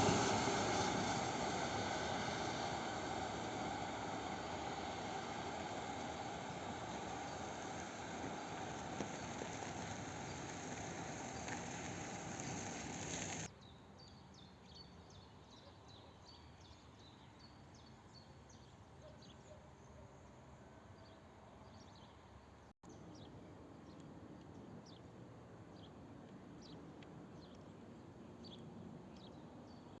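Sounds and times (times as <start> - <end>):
passing train noise: 0.0 - 13.5.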